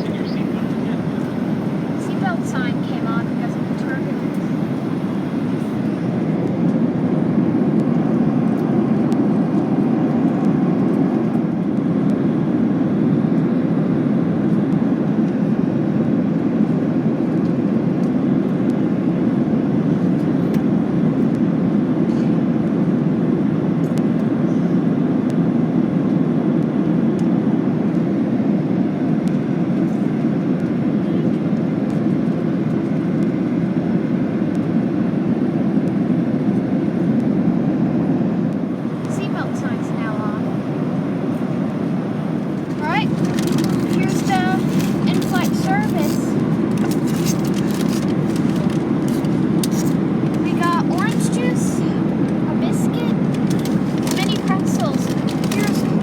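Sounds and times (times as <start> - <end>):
airflow over fuselage: 0.0 - 21.1, 26.7 - 56.0
jet engine cabin rumble: 0.0 - 56.0.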